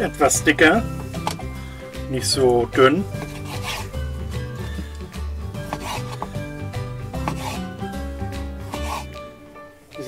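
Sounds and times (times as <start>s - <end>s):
background music with bass line: 0.0s - 9.8s
knife slicing raw meat: 3.2s - 4.9s, 5.6s - 6.6s, 7.2s - 9.3s.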